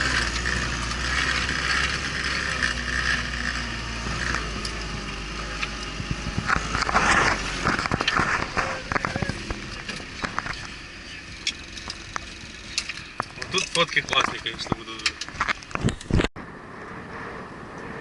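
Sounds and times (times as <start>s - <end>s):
vehicle engine drone: 0.0s - 18.0s
vehicle rattling: 0.0s - 18.0s
sharp knocks and clatters: 5.6s - 16.3s.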